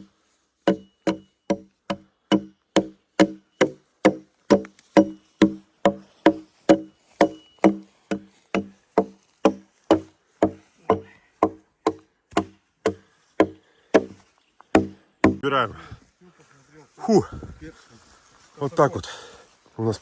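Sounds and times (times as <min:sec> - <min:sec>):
tool striking wood: 0:00.6 - 0:15.4.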